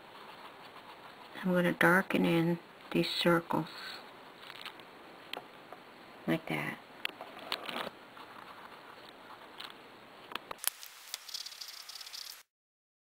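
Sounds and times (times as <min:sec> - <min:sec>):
pen scribbling on paper: 0:00.0 - 0:01.7, 0:08.2 - 0:09.6.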